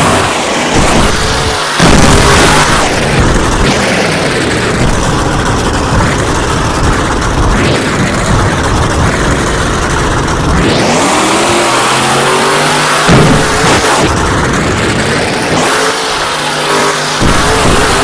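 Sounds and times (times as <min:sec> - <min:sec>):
truck engine revving: 0:00.0 - 0:18.0.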